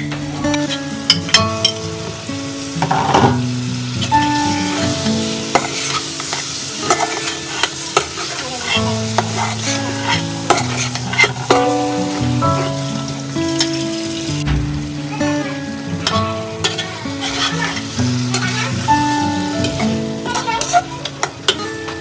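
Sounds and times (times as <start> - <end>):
chicken sizzling in hot oil: 0.0 - 14.4, 15.0 - 22.0
instrumental background music: 0.0 - 22.0
metal spoon clinking against pot: 5.5 - 11.6.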